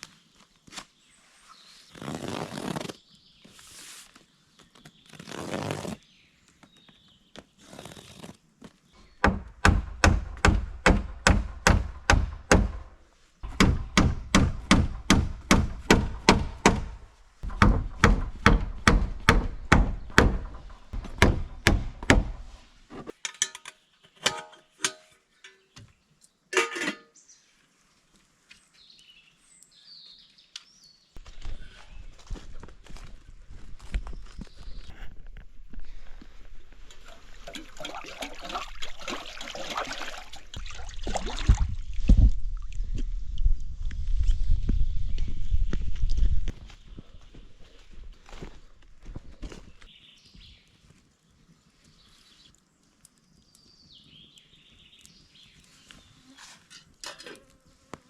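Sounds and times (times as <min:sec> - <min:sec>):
rapid knocking thuds: 0:13.4 - 0:22.4.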